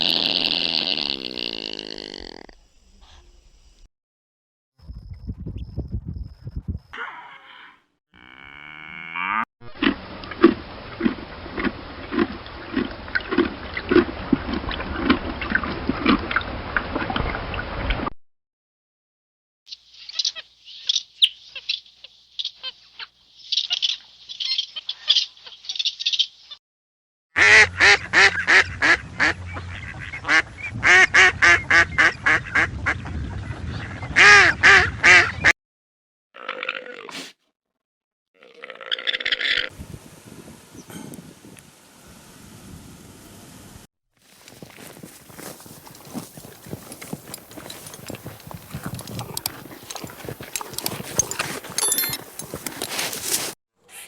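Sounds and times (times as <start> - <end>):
animal calls: 45.2 - 54.0.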